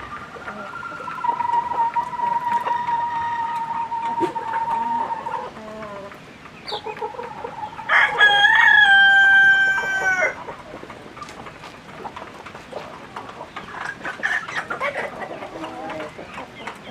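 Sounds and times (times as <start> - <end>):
hens clucking: 0.0 - 16.9
rooster crowing: 7.8 - 10.4.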